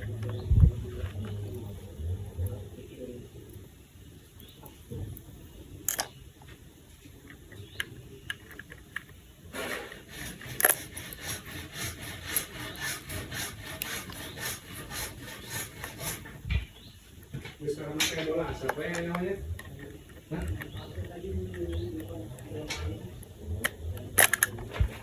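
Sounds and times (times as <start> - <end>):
scraping strokes: 9.5 - 16.7.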